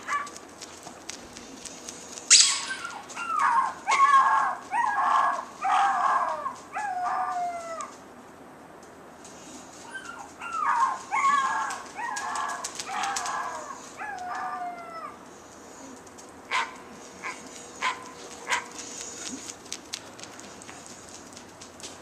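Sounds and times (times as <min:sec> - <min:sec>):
dog barking: 0:00.0 - 0:00.4, 0:02.3 - 0:07.2, 0:16.5 - 0:18.7
dog whining and yelping: 0:02.3 - 0:07.9, 0:09.8 - 0:15.2.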